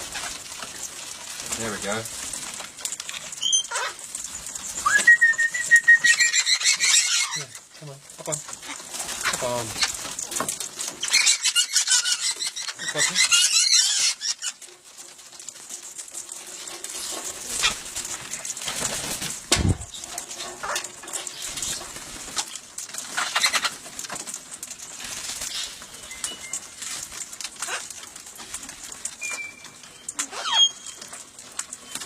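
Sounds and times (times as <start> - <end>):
parrot wings flapping: 15.6 - 29.2.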